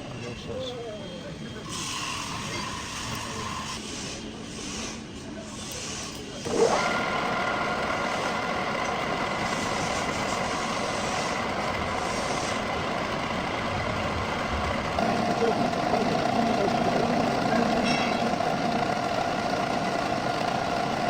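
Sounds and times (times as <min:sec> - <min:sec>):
metal lathe running: 0:00.0 - 0:21.0.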